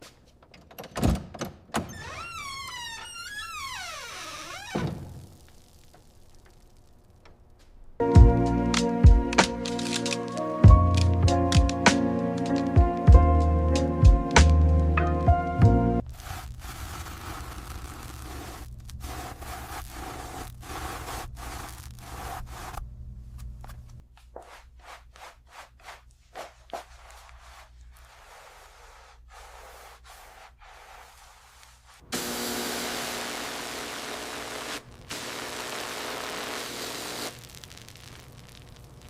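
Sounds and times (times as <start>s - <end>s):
music: 8.0s - 16.0s
rubbing and scraping on a surface: 16.0s - 32.0s
steady hiss: 27.4s - 39.0s.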